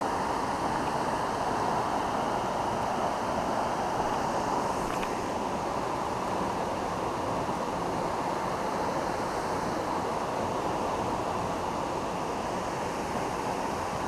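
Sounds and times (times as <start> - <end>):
flowing creek water: 0.0 - 14.0.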